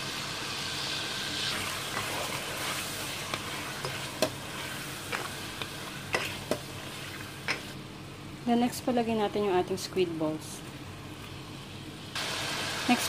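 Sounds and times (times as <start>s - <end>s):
food sizzling in a pan: 0.0s - 7.9s, 11.4s - 13.0s.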